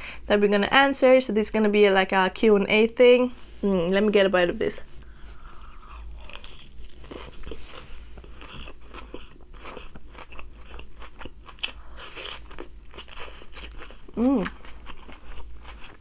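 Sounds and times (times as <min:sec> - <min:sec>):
person chewing crunchy food: 0:05.3 - 0:16.0.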